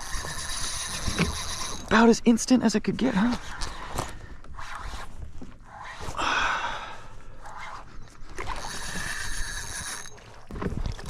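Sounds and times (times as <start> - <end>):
fishing reel whirring: 0.0 - 2.1, 7.4 - 11.0.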